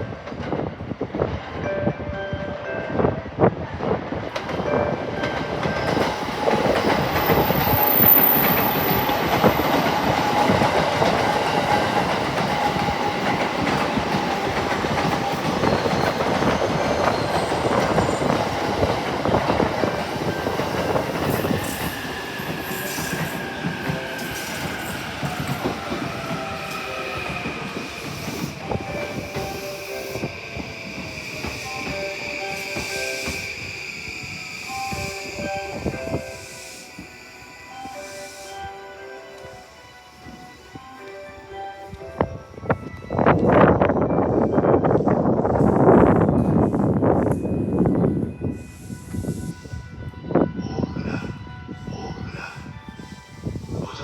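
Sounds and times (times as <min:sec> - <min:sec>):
train whining tones: 0:00.0 - 0:54.0
train wheels clattering: 0:03.8 - 0:37.1.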